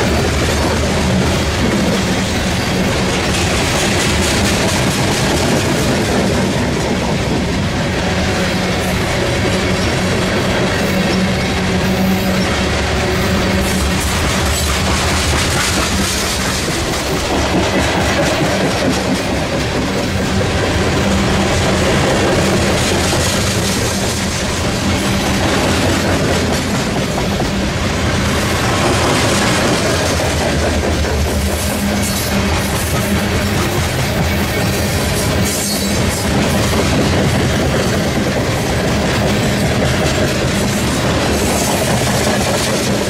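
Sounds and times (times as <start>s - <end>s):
train wheels rumbling on rails: 0.0s - 43.0s
wheels clicking over rail joints: 13.6s - 43.0s.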